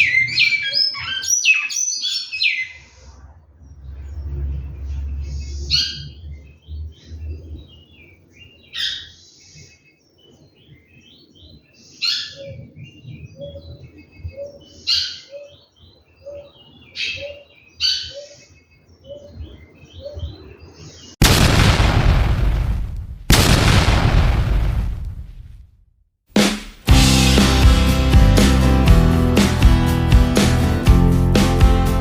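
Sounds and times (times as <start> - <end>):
bird whistled song: 0.0 - 3.1.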